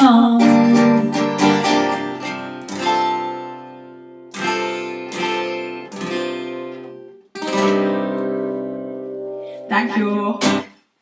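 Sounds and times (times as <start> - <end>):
acoustic guitar strumming chords: 0.0 - 10.8.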